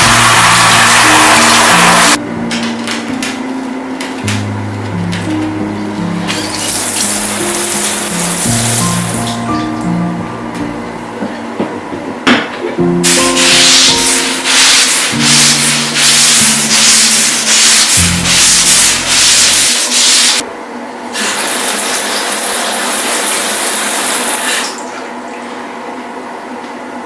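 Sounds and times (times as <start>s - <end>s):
brush scrubbing a surface: 13.1s - 20.4s.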